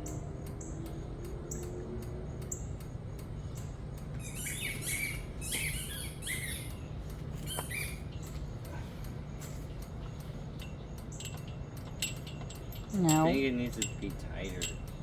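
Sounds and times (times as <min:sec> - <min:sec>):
faint repeating high ticks: 0:00.0 - 0:05.3, 0:06.6 - 0:15.0
steady low hum: 0:00.0 - 0:15.0
small bird chirping: 0:03.6 - 0:08.7.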